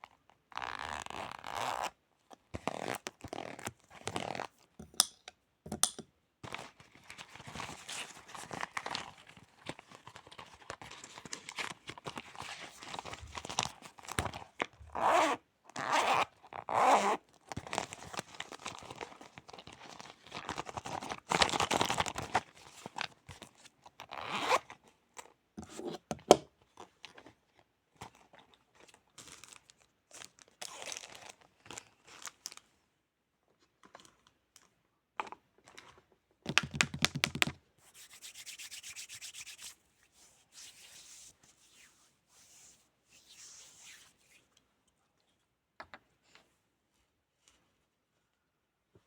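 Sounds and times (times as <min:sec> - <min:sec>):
hands rubbing and rustling objects: 0:36.5 - 0:44.6.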